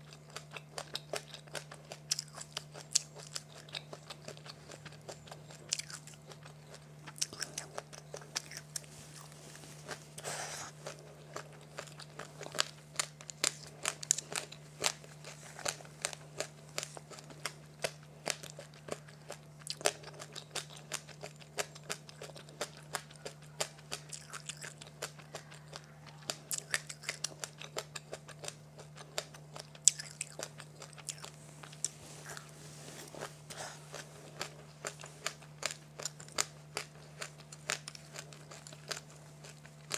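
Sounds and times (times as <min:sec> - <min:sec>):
crunching and chewing snacks: 0:00.0 - 0:39.9
faint steady hum: 0:00.0 - 0:39.9.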